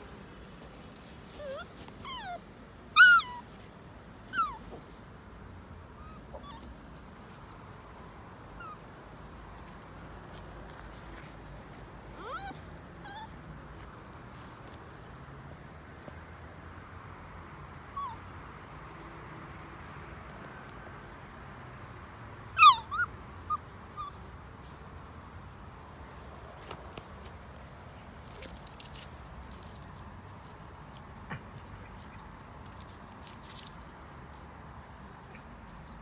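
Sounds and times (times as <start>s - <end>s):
rustling: 0.0s - 2.6s, 6.2s - 15.7s, 18.0s - 36.0s
dog whining: 1.4s - 2.4s, 3.0s - 3.5s, 4.3s - 4.7s, 6.0s - 6.7s, 11.0s - 14.5s, 17.6s - 18.3s, 21.2s - 21.4s, 22.5s - 24.3s, 25.3s - 26.0s.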